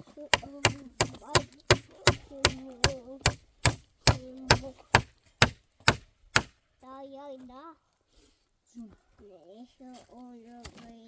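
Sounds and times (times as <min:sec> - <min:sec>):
rapid chopping: 0:00.3 - 0:06.6.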